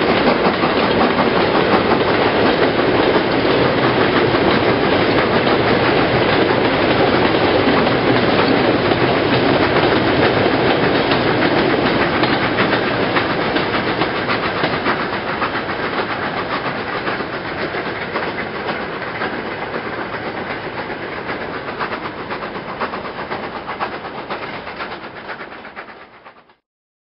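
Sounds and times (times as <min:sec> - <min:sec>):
wheels clicking over rail joints: 0:00.0 - 0:26.2.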